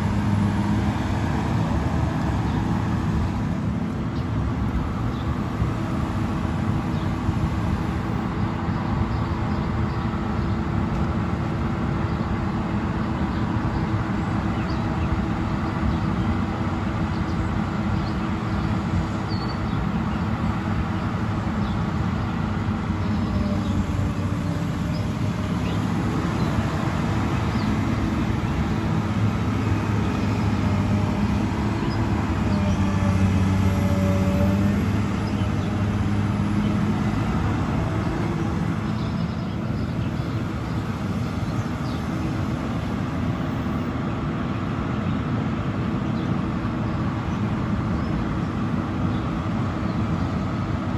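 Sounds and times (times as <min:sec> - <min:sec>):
engine droning: 0:00.0 - 0:50.9.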